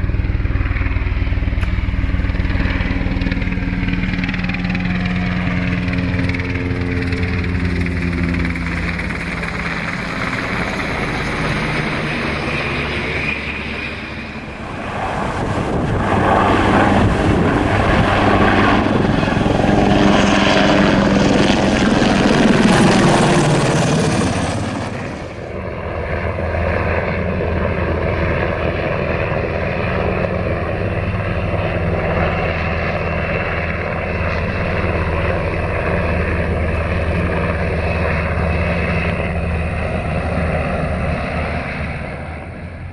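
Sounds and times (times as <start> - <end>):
helicopter engines and rotor: 0.0 - 42.9.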